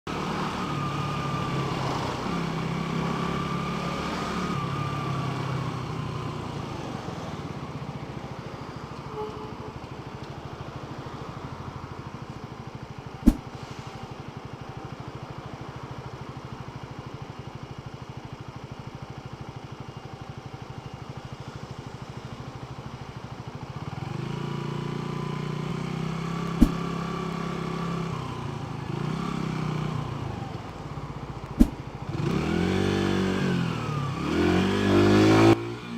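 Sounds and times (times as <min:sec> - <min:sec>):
motorcycle engine running: 0:11.7 - 0:34.3.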